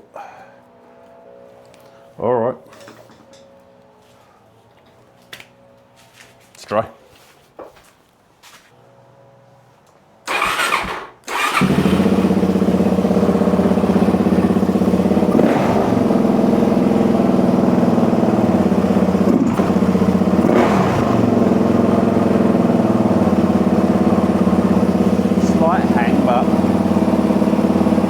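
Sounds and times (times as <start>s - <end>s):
motorcycle engine cranking: 10.3s - 16.5s, 17.3s - 28.0s
engine revving: 10.3s - 28.0s
motorcycle engine idling: 10.6s - 28.0s.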